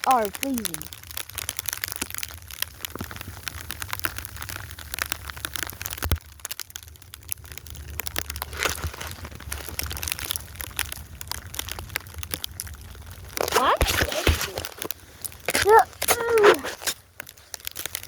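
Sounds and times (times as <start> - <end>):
snow crunching: 8.4 - 10.0, 13.3 - 18.0.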